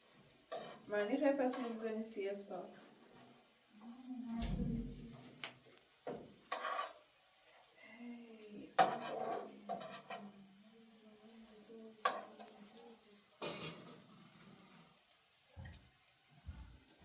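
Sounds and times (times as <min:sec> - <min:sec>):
pots and utensils knocking: 0:08.8 - 0:10.2, 0:13.4 - 0:14.0.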